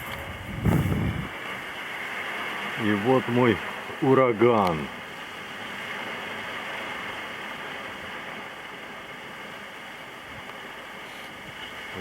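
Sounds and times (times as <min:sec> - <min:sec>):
gusty wind rushing: 0:00.0 - 0:01.6.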